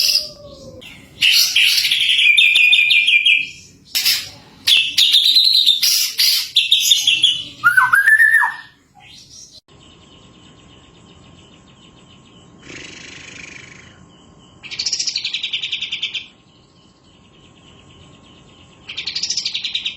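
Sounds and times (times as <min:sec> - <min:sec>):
rapid buzzy bird trill: 0:00.0 - 0:19.9
songbird whistles and glides: 0:07.0 - 0:08.7.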